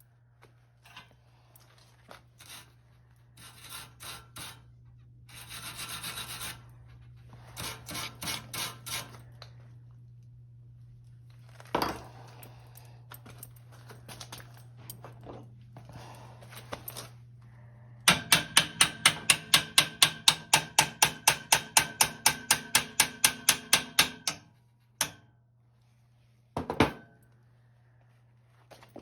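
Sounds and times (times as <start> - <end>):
steady low hum: 0.0 - 29.0
rubbing strokes on workpiece: 2.4 - 2.8, 3.4 - 9.2.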